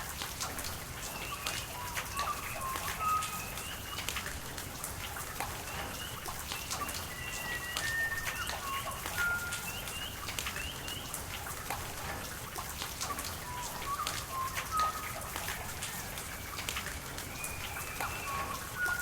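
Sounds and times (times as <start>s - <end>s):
rain with drops pattering: 0.0s - 19.0s
birds whistling calls: 1.0s - 4.3s, 5.6s - 11.1s, 13.4s - 19.0s.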